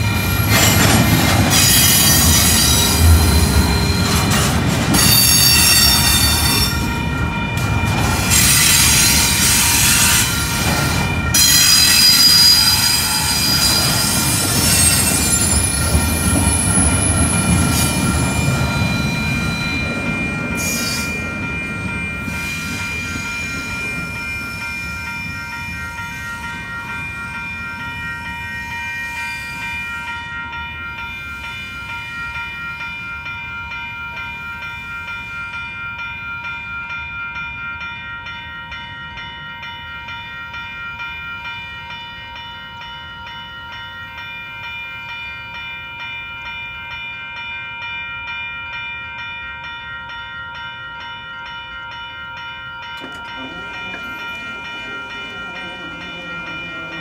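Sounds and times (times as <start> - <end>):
train wheel squeal: 0.0 - 7.2, 7.8 - 30.3
freight train rumble: 0.0 - 35.2, 51.5 - 57.0
crossing warning bell: 0.0 - 57.0.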